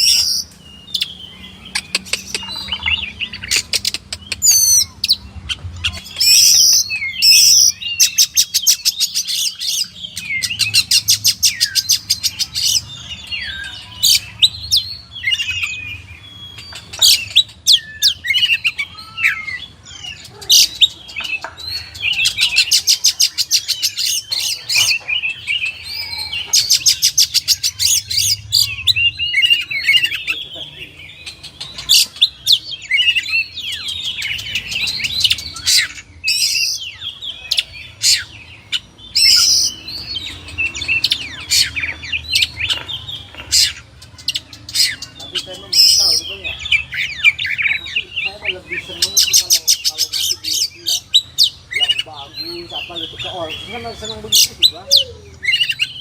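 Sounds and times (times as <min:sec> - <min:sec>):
songbird trills and whistles: 0:00.0 - 0:56.0.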